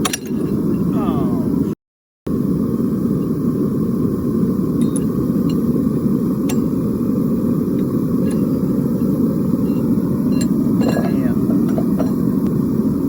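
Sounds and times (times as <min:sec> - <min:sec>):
forge roaring: 0:00.0 - 0:13.0.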